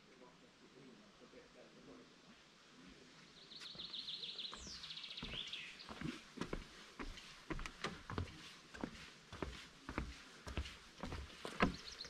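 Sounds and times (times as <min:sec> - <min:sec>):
footsteps on forest trail: 0:03.5 - 0:12.0.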